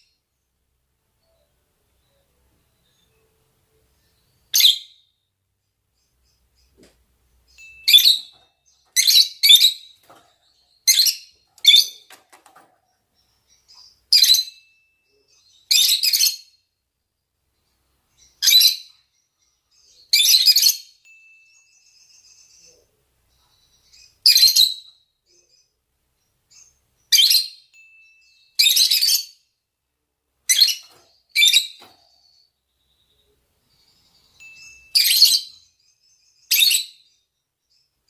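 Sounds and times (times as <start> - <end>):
lovebirds giving shrill calls: 7.5 - 12.2, 13.5 - 14.6, 18.3 - 18.9, 23.8 - 24.9, 26.5 - 27.7, 28.3 - 29.4, 30.5 - 32.4, 34.1 - 35.7, 36.4 - 37.0.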